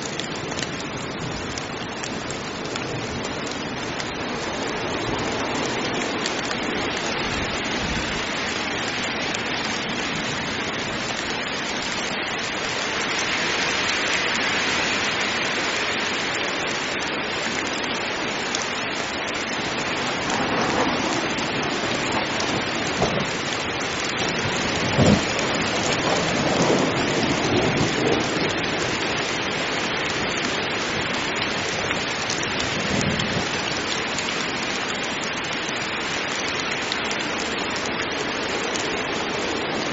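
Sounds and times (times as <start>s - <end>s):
heavy rain falling: 0.0s - 39.9s
thunder cracks and rumbles: 20.1s - 23.4s, 24.3s - 29.0s.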